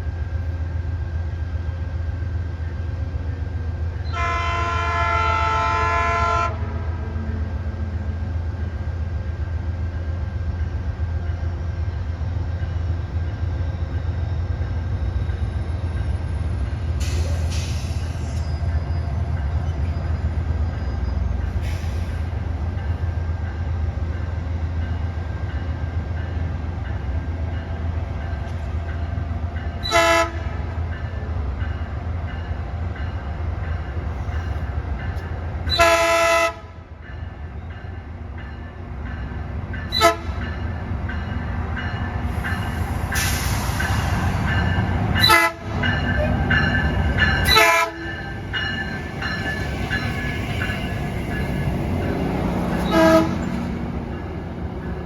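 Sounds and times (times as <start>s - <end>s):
train rumble: 0.0s - 55.0s
train air horn blasts: 4.1s - 7.0s, 29.8s - 30.6s, 35.7s - 36.8s, 39.9s - 40.4s, 45.2s - 46.4s, 47.4s - 48.2s, 52.8s - 53.5s.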